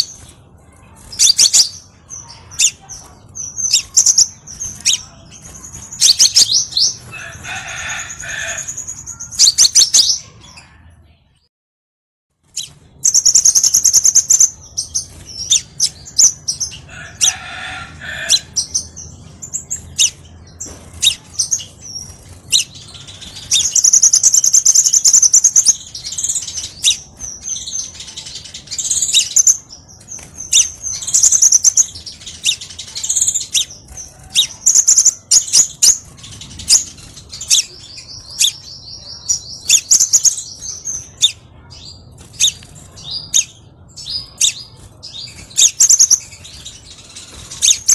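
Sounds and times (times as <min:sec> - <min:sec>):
bird chirping and trilling: 0:00.0 - 0:10.9, 0:12.4 - 0:47.9.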